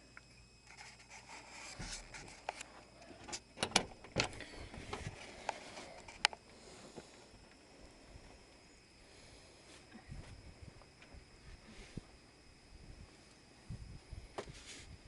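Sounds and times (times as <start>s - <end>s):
faint rustling: 0.6s - 12.2s
sharp clicks and knocks: 1.8s - 6.4s.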